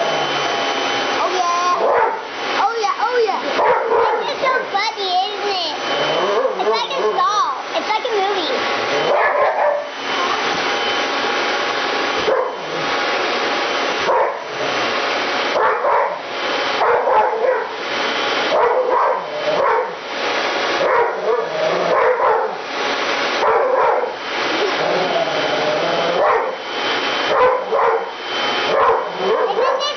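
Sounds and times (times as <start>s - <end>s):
vacuum cleaner whirring: 0.0s - 29.9s
dog barking and yelping: 1.8s - 2.3s, 3.4s - 4.7s, 6.1s - 7.3s, 9.0s - 10.0s, 12.2s - 13.0s, 14.0s - 14.6s, 15.5s - 17.8s, 18.5s - 20.0s, 20.8s - 22.7s, 23.4s - 25.2s, 26.0s - 26.6s, 27.2s - 29.9s.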